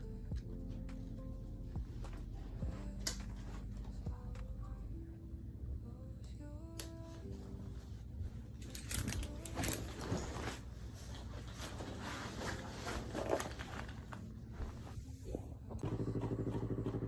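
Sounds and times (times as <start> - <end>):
handling rustling and clicks: 8.6 - 14.3
motorcycle engine running: 15.8 - 17.0.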